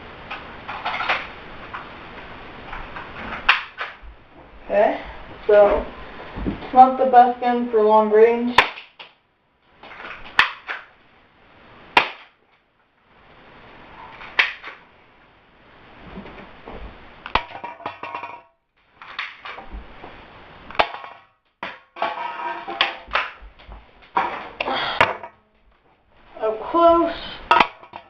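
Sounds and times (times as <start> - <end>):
airsoft pistol shots: 12.0 - 12.4.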